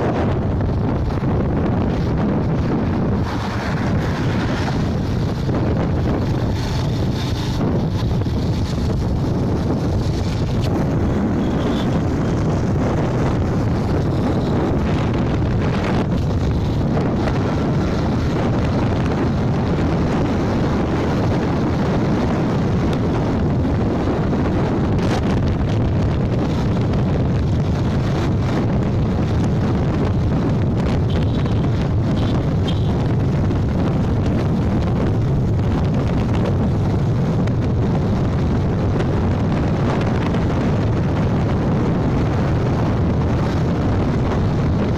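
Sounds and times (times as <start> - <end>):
road noise: 0.0 - 44.9
wind rushing over microphone: 0.0 - 44.9
motorbike engine: 0.1 - 23.4.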